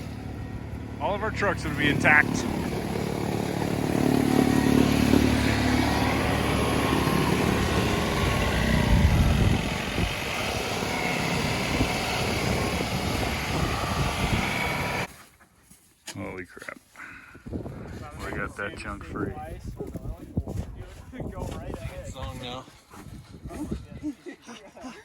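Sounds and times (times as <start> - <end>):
tractor diesel engine running: 0.0 - 15.1.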